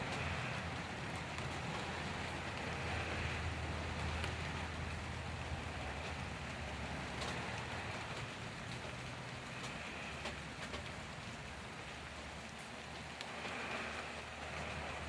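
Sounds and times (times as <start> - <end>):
drops ticking on a surface: 0.0 - 14.8
rain falling: 0.0 - 15.0.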